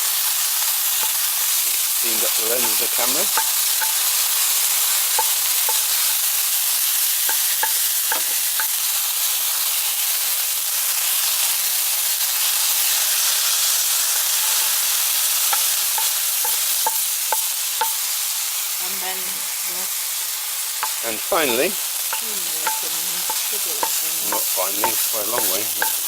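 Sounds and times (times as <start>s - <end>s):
onions sizzling in hot oil: 0.0s - 26.0s
spoon clicking against pan: 0.6s - 1.3s, 2.6s - 4.1s, 5.1s - 6.3s, 7.3s - 8.8s, 15.5s - 18.0s, 20.8s - 26.0s.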